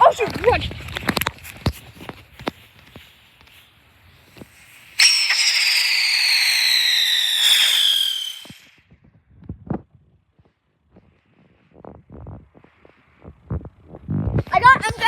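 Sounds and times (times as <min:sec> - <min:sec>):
whistling firework: 0:04.1 - 0:09.0.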